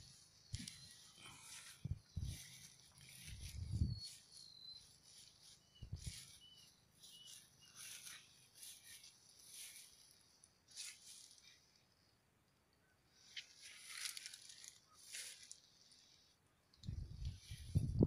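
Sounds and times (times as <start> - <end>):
small bird chirping: 0.0 - 12.0
rustling: 13.3 - 16.1.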